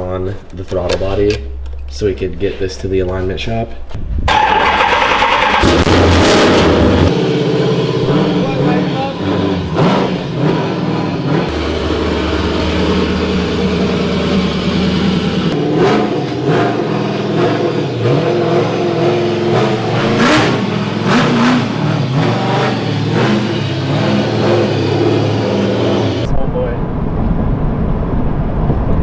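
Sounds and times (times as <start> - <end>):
car engine revving: 3.8 - 26.3.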